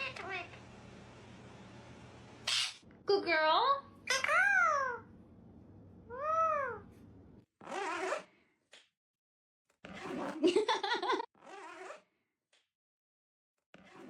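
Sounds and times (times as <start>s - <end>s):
parrot squawking: 2.4s - 2.8s, 4.0s - 5.1s, 6.1s - 6.8s
parrot meow-like call: 6.1s - 6.8s.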